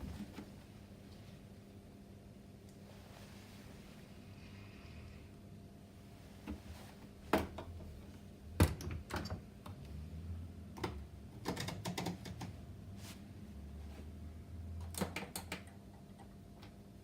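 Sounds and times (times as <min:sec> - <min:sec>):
faint low motor hum: 0:00.0 - 0:17.0
washing machine clicks and knocks: 0:08.6 - 0:09.8.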